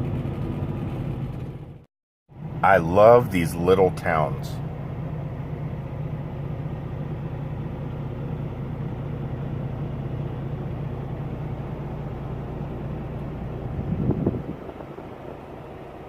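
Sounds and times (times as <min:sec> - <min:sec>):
diesel truck engine drone: 0:00.0 - 0:16.0.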